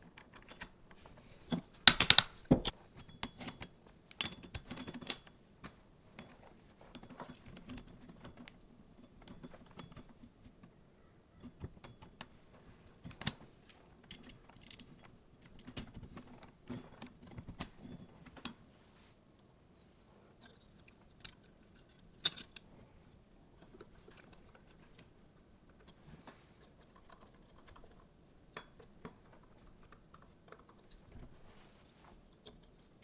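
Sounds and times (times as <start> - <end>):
small hard parts clicking: 0.0 - 6.3.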